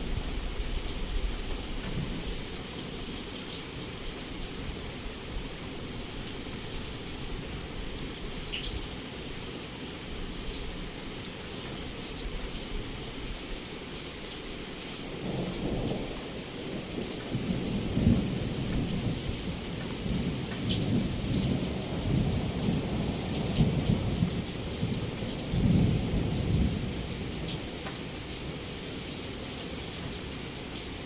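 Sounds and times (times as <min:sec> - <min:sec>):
heavy rain falling: 0:00.0 - 0:31.0.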